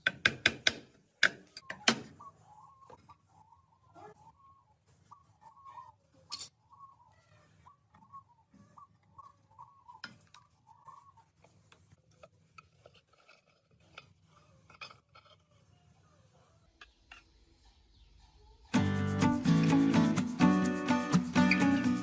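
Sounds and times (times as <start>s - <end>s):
faint bird chirping: 1.6s - 11.4s, 15.6s - 18.8s.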